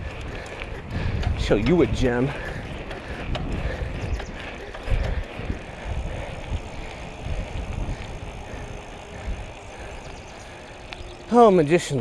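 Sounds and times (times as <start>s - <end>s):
wind rumbling on microphone: 0.0s - 11.4s.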